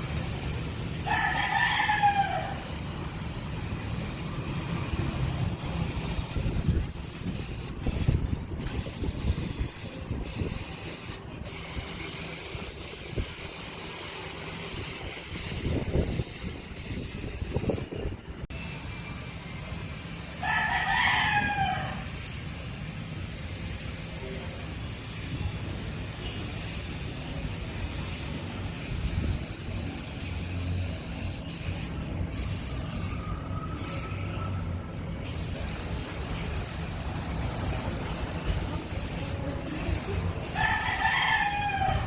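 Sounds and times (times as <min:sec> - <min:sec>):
rooster crowing: 0:01.0 - 0:02.7, 0:20.4 - 0:22.0, 0:40.5 - 0:42.0.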